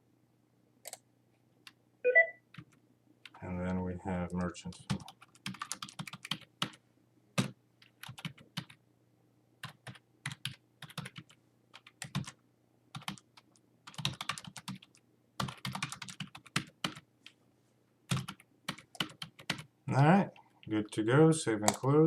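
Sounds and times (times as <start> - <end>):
keyboard typing: 4.3 - 6.8, 7.4 - 8.8, 9.6 - 17.4, 18.1 - 19.7.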